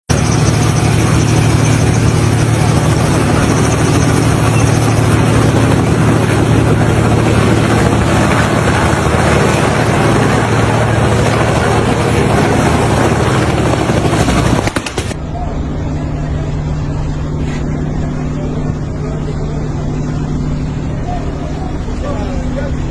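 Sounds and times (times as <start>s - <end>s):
engine droning: 0.1s - 22.9s.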